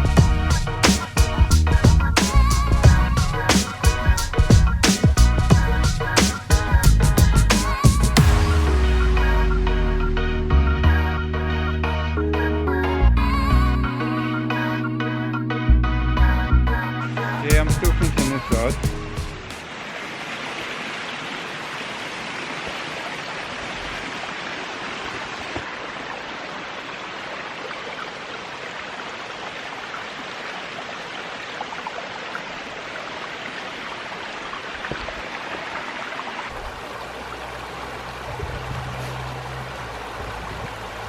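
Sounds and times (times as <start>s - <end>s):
water rushing over rocks: 0.0s - 10.0s, 17.4s - 41.0s
low rumble: 8.1s - 12.0s.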